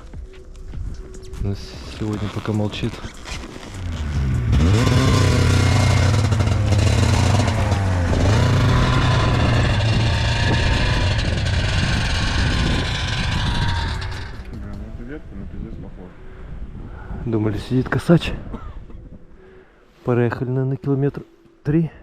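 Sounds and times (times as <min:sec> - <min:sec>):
snowmobile engine revving: 0:03.7 - 0:14.5.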